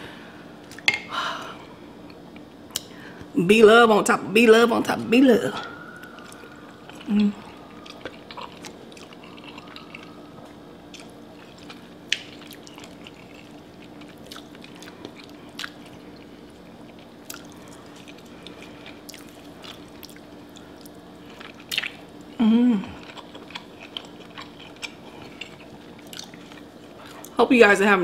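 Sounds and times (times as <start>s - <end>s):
faint steady hum: 0.0s - 28.0s
wet chewing: 6.0s - 27.4s.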